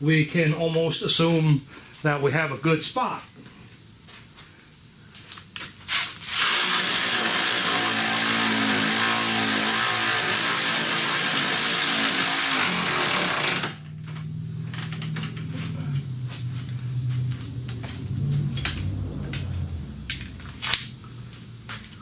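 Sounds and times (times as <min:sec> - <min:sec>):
steady low hum: 0:00.0 - 0:06.9, 0:10.2 - 0:22.0
power tool driving a bolt: 0:05.9 - 0:15.3.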